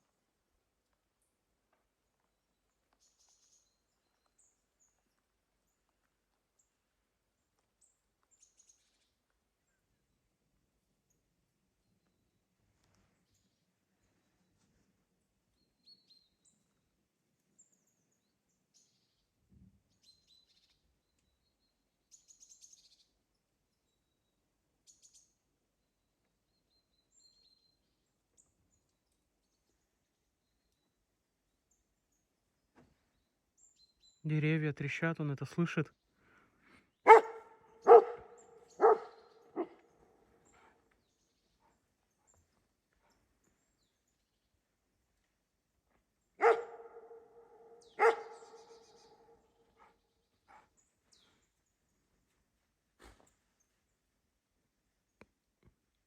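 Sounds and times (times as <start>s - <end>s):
small birds chirping: 0.0s - 10.3s, 11.0s - 54.2s
dog barking: 37.1s - 39.8s, 46.4s - 48.8s.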